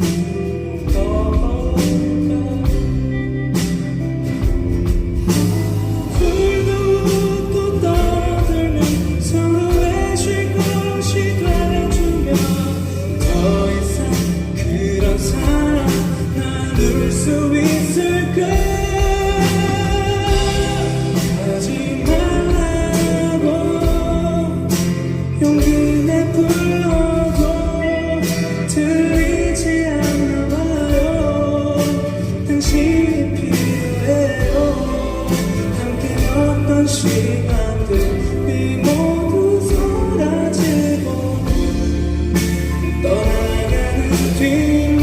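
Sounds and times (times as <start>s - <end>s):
drums: 0.0s - 45.0s
guitar: 0.0s - 45.0s
person singing: 0.0s - 45.0s.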